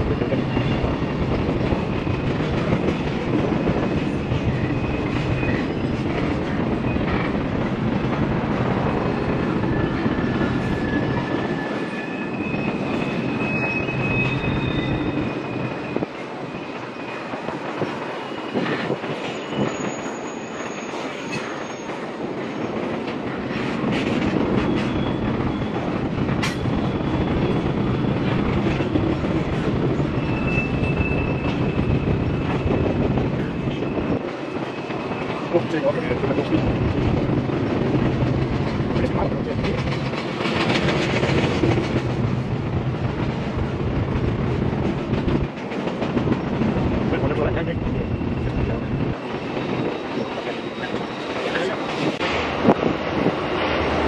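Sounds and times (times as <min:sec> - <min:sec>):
freight train cars rolling: 0:00.0 - 0:54.0
high-pitched wheel squeals: 0:04.4 - 0:06.1, 0:09.6 - 0:16.2, 0:18.2 - 0:22.0, 0:30.0 - 0:33.0.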